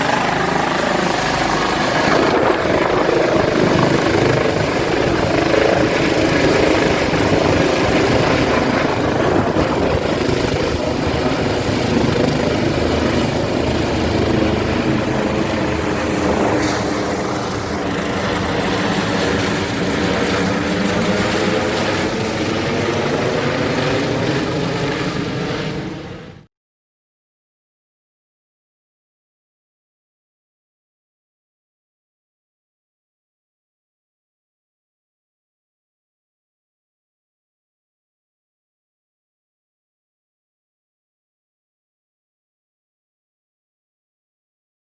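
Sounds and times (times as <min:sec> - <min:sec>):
turbine and blade rush: 0:00.0 - 0:26.4
helicopter rotor beat: 0:00.0 - 0:26.5.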